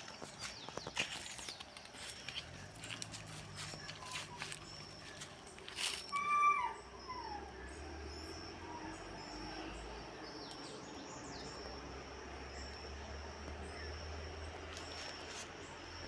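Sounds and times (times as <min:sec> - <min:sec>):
faint background noise: 0:00.0 - 0:16.0
animal whining calls: 0:05.8 - 0:07.8.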